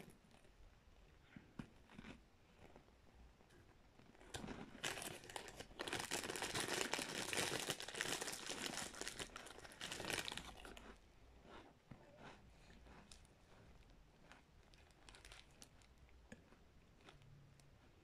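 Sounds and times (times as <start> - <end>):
person crunching cornstarch: 4.0 - 18.0.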